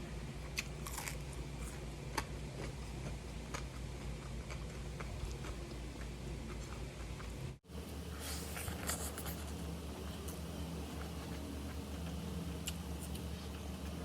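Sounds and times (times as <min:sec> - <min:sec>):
steady low hum: 0:00.0 - 0:14.0
person chewing food: 0:00.4 - 0:09.6.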